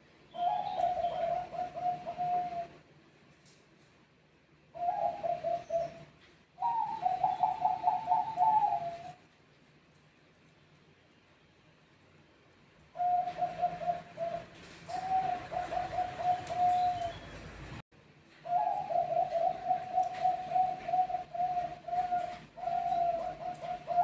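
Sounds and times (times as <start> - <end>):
doves cooing: 0.3 - 2.8, 4.7 - 9.3, 12.9 - 17.7, 18.4 - 24.0.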